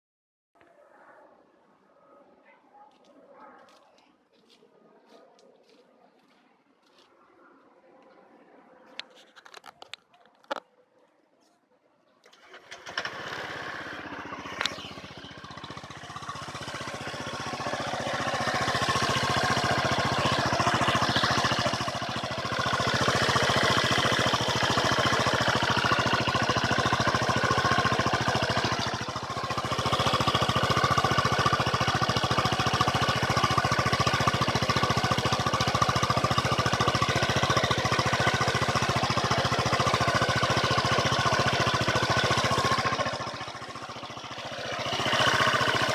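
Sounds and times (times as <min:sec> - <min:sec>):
scooter engine starting and running: 0:09.0 - 0:10.6, 0:12.2 - 0:45.9.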